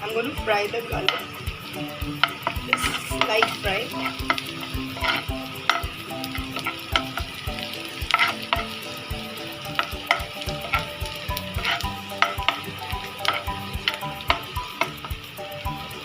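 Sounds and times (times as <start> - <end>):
garlic sizzling in oil: 0.0 - 16.0
utensil scraping a pan: 0.5 - 16.0.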